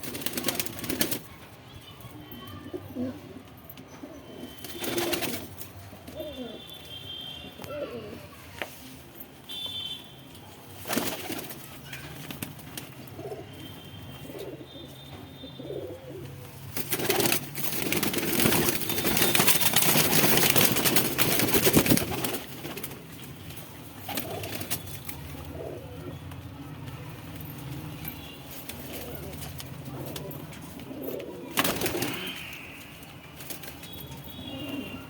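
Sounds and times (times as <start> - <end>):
pigeons cooing: 2.6 - 6.7, 7.6 - 8.4, 13.0 - 22.8, 24.0 - 26.4, 28.7 - 32.8, 34.3 - 35.0
loud rustling and scuffling: 16.6 - 25.4.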